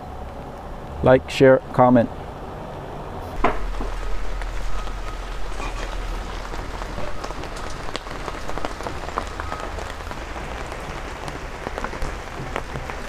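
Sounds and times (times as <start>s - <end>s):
rain on plastic tarpaulin: 3.4s - 13.0s
sharp raindrop strikes: 3.4s - 13.0s.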